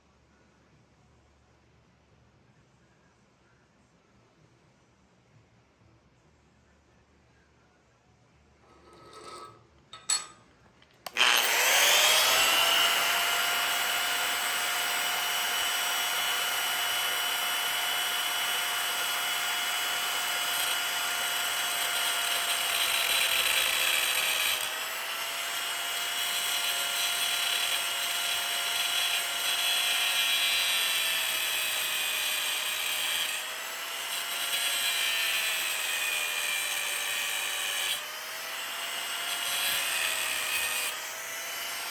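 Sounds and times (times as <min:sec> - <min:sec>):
electric grinder grinding steel: 0:08.7 - 0:10.4, 0:11.0 - 0:41.9.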